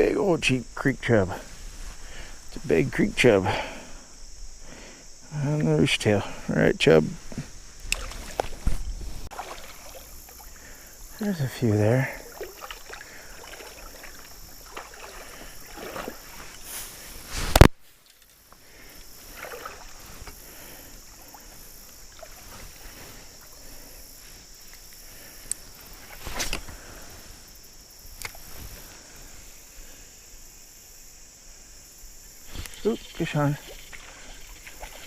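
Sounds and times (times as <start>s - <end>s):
stream water splashing: 7.2s - 17.7s, 19.1s - 23.8s, 32.7s - 35.0s.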